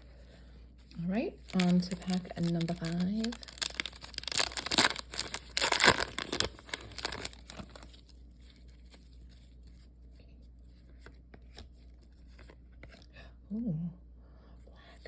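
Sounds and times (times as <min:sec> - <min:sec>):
wrapper tearing and crinkling: 0:01.4 - 0:09.8.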